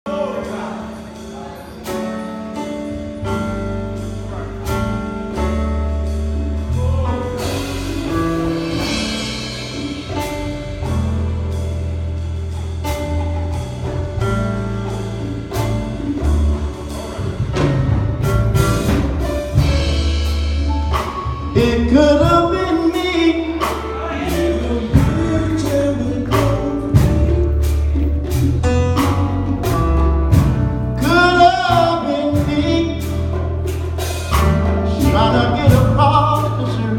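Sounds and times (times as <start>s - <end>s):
bass line: 0.0s - 36.9s
keyboard chords: 0.0s - 36.9s
drum beat: 3.0s - 36.9s
person singing: 21.5s - 27.8s, 31.0s - 33.5s, 34.1s - 36.9s.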